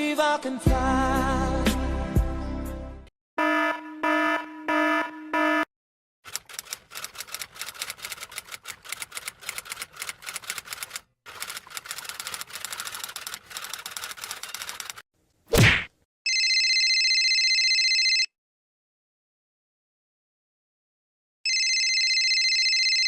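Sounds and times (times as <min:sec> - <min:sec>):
typewriter keystrokes clattering: 0:06.3 - 0:15.0.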